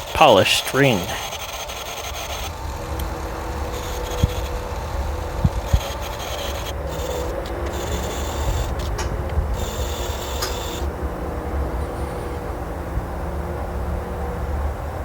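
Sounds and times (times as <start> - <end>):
ring rubbing on sanding disc: 0.0 - 9.0
sanding machine motor hum: 0.0 - 14.3.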